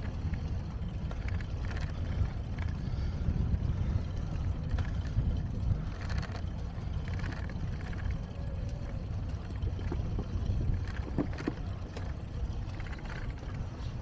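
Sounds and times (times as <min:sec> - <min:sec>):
bicycle rolling rumble: 0:00.0 - 0:14.0
wind buffeting microphone: 0:00.0 - 0:14.0
light knocks and rattles: 0:09.4 - 0:14.0.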